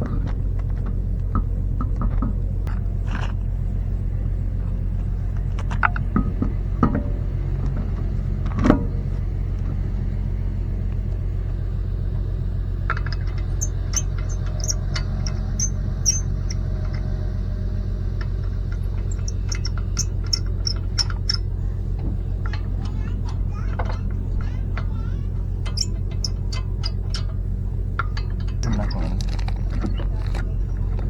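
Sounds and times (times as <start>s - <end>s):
low mechanical hum: 0.0s - 31.0s
high-pitched clicks and squeaks: 13.1s - 17.1s, 18.7s - 21.5s, 25.6s - 27.3s.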